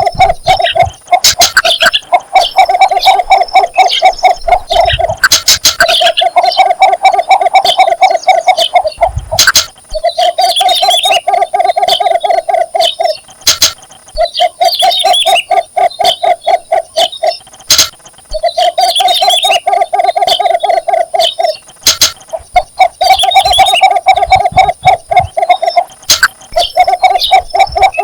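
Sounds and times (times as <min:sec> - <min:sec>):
bittern clucking call: 0:00.0 - 0:28.0
sharp click: 0:05.2 - 0:05.9, 0:09.4 - 0:09.8, 0:13.5 - 0:13.9, 0:17.7 - 0:18.0, 0:21.8 - 0:22.3, 0:26.1 - 0:26.4.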